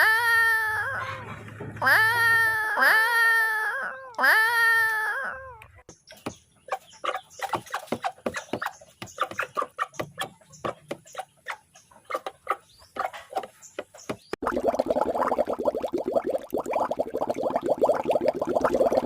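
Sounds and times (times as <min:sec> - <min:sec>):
chickens clucking: 0:00.9 - 0:01.9, 0:06.5 - 0:14.1.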